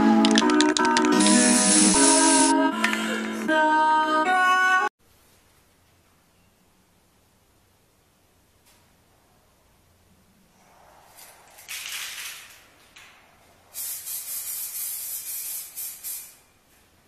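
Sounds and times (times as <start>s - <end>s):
spray paint can spraying: 0.0s - 3.1s, 13.7s - 16.4s.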